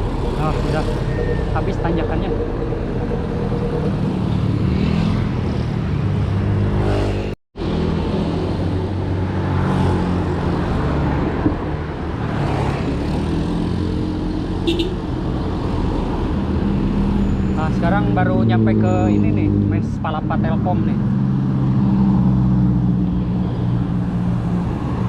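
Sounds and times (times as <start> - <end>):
vehicle engines running: 0.0 - 9.1.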